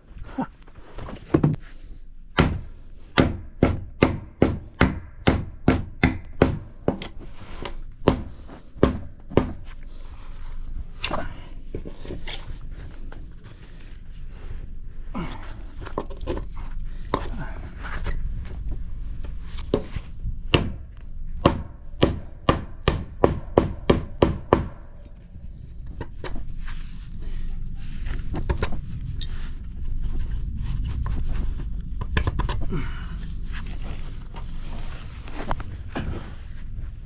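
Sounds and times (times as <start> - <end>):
scraping and handling noise: 0.0 - 2.1, 6.9 - 21.2, 25.0 - 37.0.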